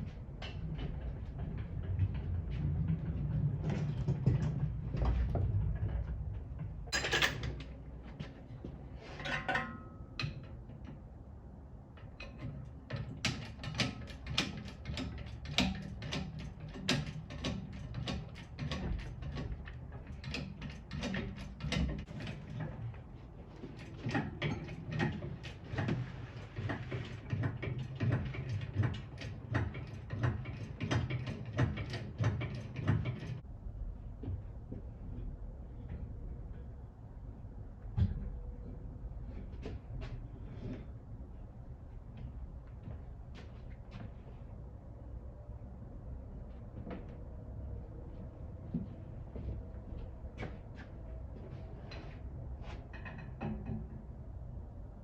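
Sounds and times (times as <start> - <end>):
sharp clicks and knocks: 11.9 - 23.0, 23.6 - 33.4, 52.7 - 54.2.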